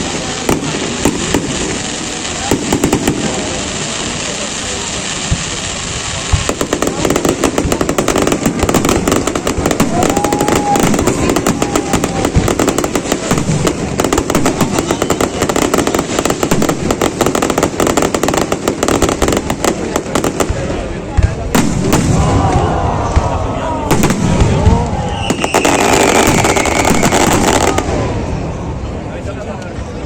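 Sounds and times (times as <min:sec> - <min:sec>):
fireworks crackling bangs: 0:00.0 - 0:30.0
rising whistle: 0:25.0 - 0:27.4.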